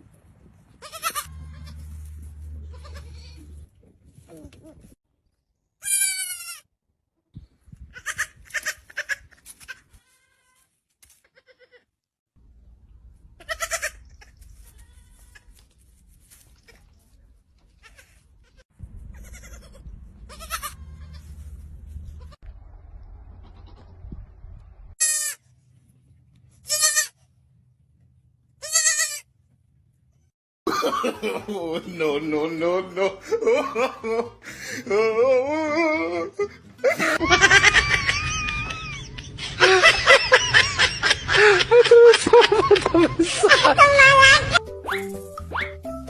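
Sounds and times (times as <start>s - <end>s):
goats bleating: 0.8s - 2.0s, 2.6s - 3.6s.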